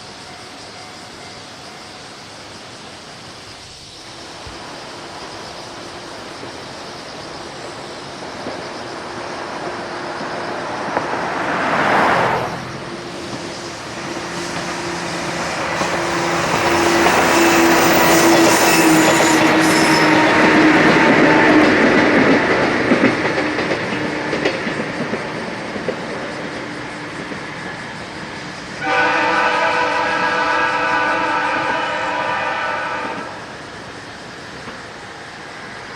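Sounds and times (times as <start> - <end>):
electric train running hum: 0.0 - 35.9
road vehicle passing: 9.3 - 23.4.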